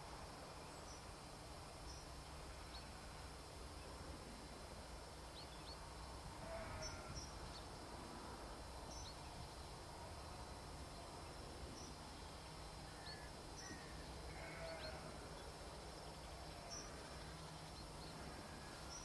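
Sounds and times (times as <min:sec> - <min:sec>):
small birds chirping: 0:05.2 - 0:07.8, 0:08.6 - 0:09.9, 0:10.5 - 0:19.0.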